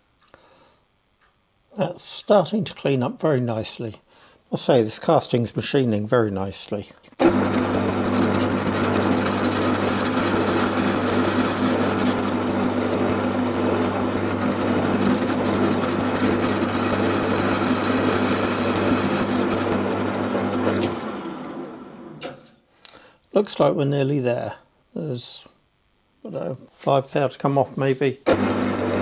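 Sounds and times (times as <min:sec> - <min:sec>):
lathe motor humming: 0:07.2 - 0:22.2, 0:28.3 - 0:29.0
hiss of lathe cutting metal: 0:07.8 - 0:20.0.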